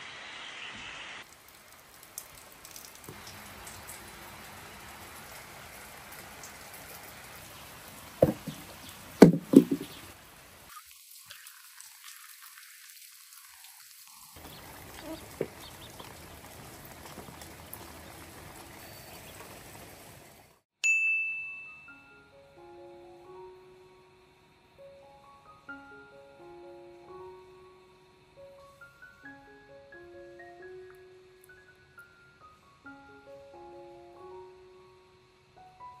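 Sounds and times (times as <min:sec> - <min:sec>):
rain hissing: 0:00.0 - 0:20.6
sharp loud knocks: 0:08.2 - 0:10.0.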